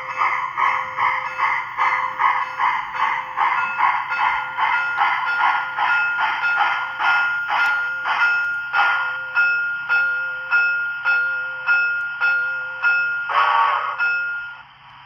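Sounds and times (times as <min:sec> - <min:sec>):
steam exhaust chuffs: 0:00.0 - 0:10.0
steady ringing tone: 0:00.0 - 0:13.3.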